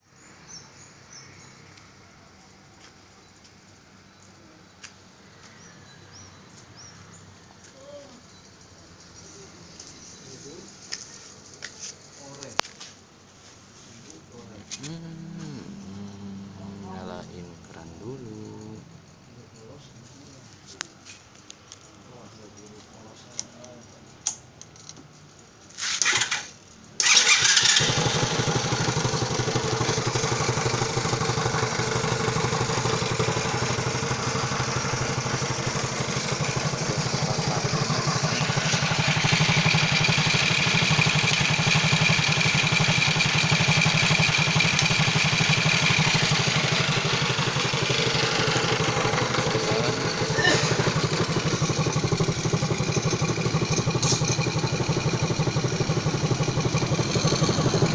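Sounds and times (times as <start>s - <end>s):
minibike engine idling: 14.1s - 19.9s, 26.0s - 57.9s
electric starter cranking: 25.8s - 57.9s.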